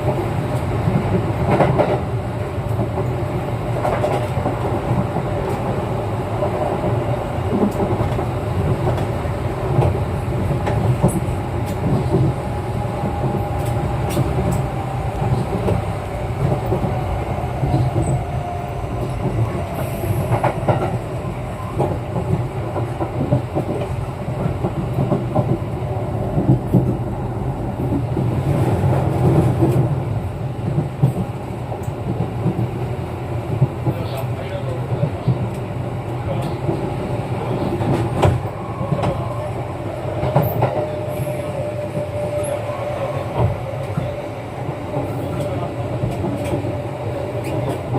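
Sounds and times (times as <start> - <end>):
train wheels rumbling on rail: 0.0 - 47.9
rail joint clack: 33.5 - 47.9.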